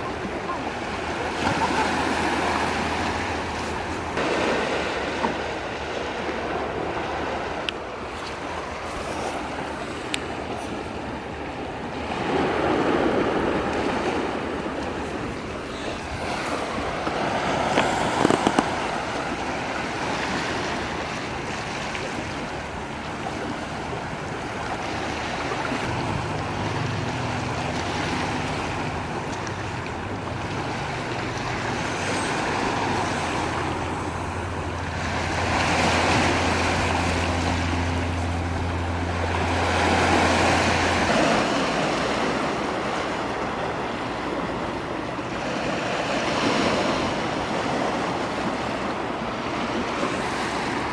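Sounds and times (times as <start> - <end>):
sea waves washing ashore: 0.0 - 50.9
low steady hum: 14.3 - 42.5.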